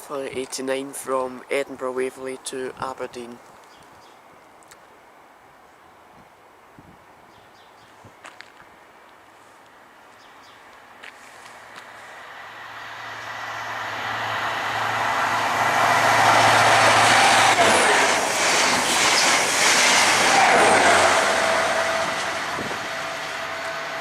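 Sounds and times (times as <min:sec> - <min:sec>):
diesel train passing: 0:10.8 - 0:24.0.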